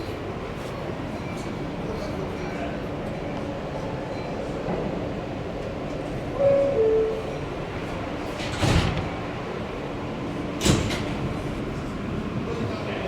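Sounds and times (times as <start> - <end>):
subway car rumble: 0.0 - 13.0
sliding doors banging shut: 8.2 - 9.4, 10.6 - 11.2.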